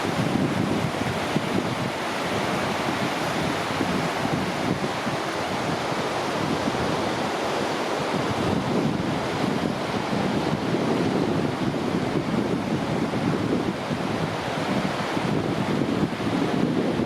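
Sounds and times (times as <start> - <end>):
ocean surf on a beach: 0.0 - 17.0
wind buffeting microphone: 0.0 - 17.0.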